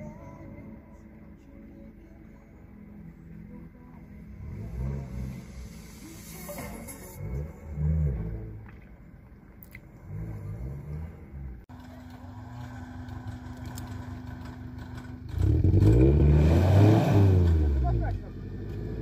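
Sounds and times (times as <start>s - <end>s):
off-road vehicle engine revving: 4.3s - 8.9s, 9.6s - 19.0s.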